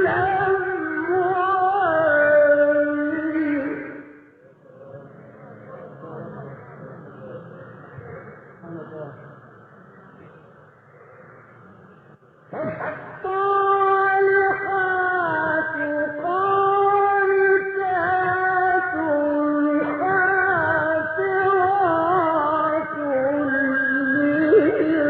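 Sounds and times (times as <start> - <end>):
man chanting melodically: 12.6 - 25.0.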